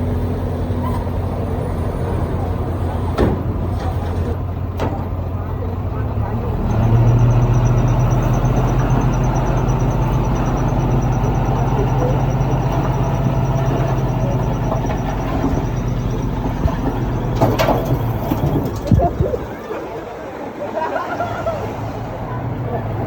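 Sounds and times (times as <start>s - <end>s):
heavy diesel engine running: 0.0s - 23.0s
clatter of knocks: 12.6s - 19.6s.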